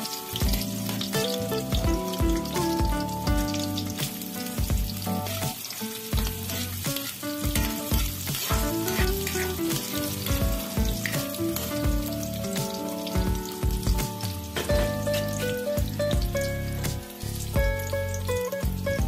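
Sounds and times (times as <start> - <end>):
garlic and onion sizzling in oil: 0.0 - 19.0
metal ladle scraping a wok: 8.0 - 10.2.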